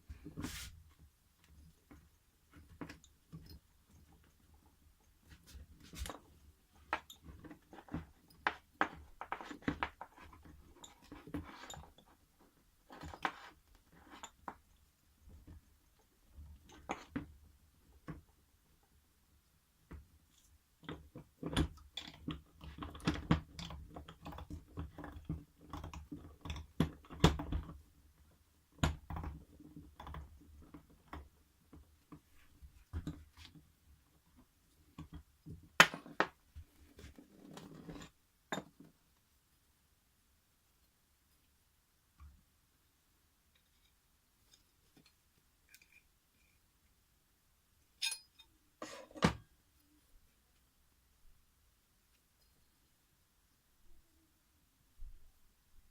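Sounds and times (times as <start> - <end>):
small hard parts handled by hand: 43.5 - 46.6, 48.0 - 49.2.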